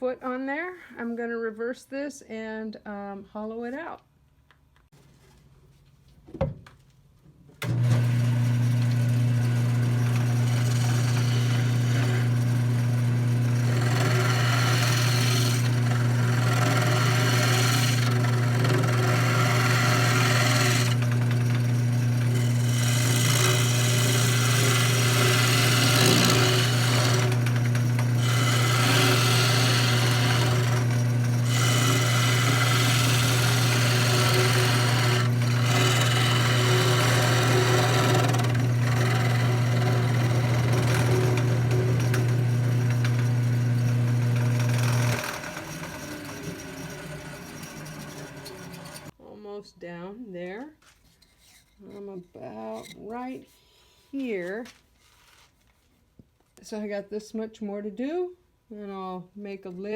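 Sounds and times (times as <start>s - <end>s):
tool cutting spinning wood: 7.6s - 49.2s, 52.2s - 53.3s
wood lathe humming: 7.6s - 49.2s.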